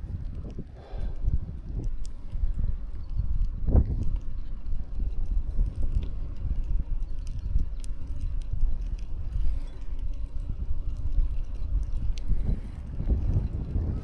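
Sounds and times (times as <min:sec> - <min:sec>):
wind rumble on microphone: 0:00.0 - 0:14.0
faint clicks: 0:00.1 - 0:14.0.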